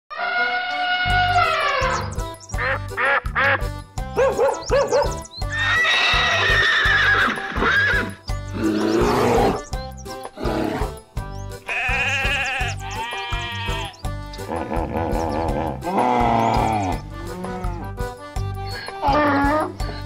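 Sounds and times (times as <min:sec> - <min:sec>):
animal calls: 0:00.1 - 0:03.2
background music: 0:00.1 - 0:20.0.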